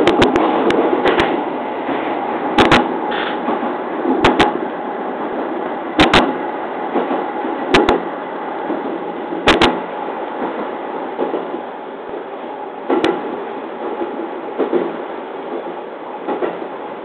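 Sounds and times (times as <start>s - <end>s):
wheels clicking over rail joints: 2.6s - 4.6s.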